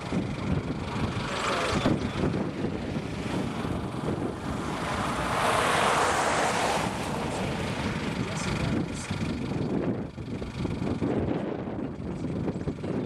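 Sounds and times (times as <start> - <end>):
car road and wind noise: 0.0 - 13.0.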